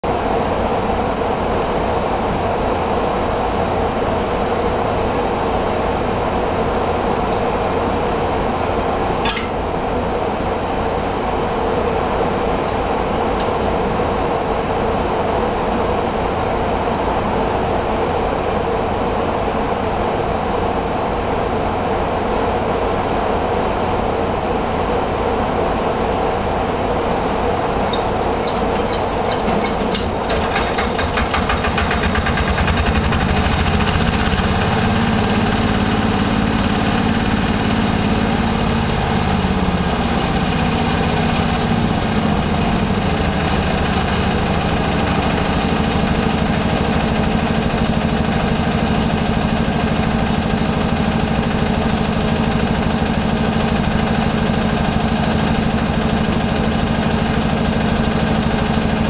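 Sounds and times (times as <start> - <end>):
tiller engine idling: 28.0 - 59.0.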